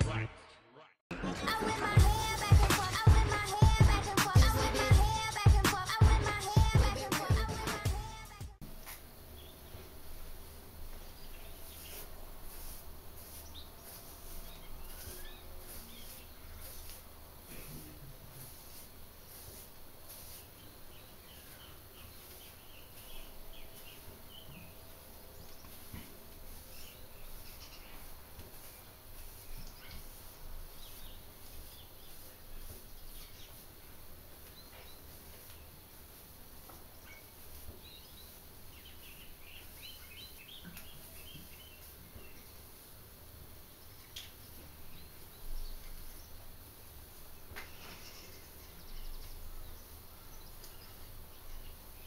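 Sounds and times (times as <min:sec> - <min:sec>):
high insect hiss: 0:08.7 - 0:37.7
bird chirps: 0:26.5 - 0:33.6.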